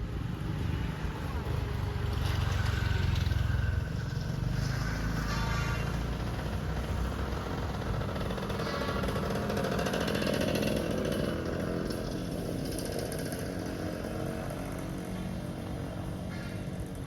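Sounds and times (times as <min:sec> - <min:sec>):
small engine rattly buzz: 0:02.1 - 0:15.3.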